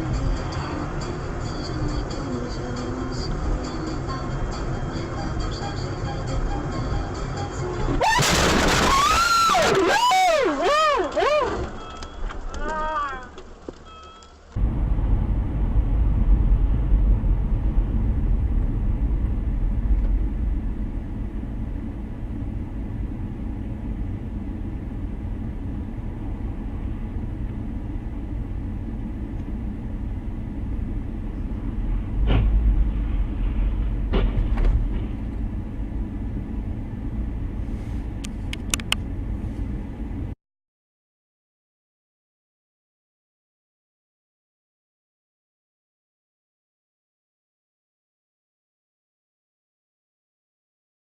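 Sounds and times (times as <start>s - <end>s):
car road and engine noise: 0.0s - 40.4s
sharp knocks: 32.2s - 32.6s, 34.0s - 35.2s.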